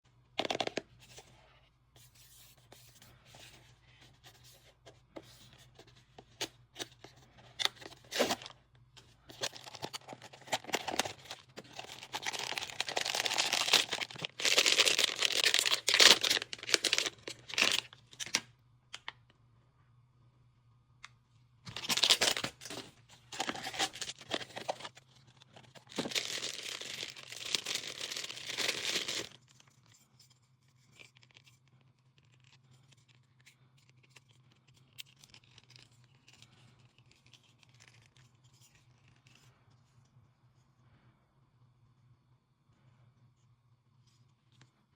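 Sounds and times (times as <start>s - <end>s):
paper tearing and crinkling: 9.5s - 17.9s, 25.7s - 29.4s.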